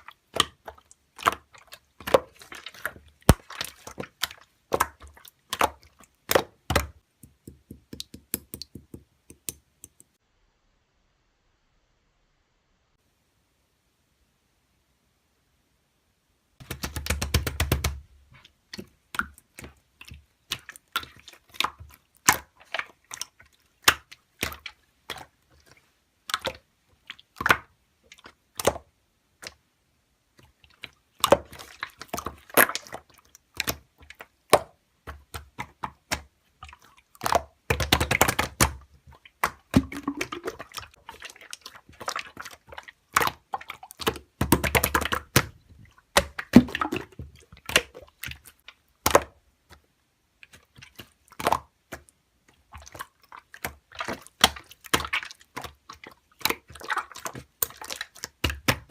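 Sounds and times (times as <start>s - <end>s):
sharp clicks and taps: 6.3s - 10.2s, 16.6s - 18.0s.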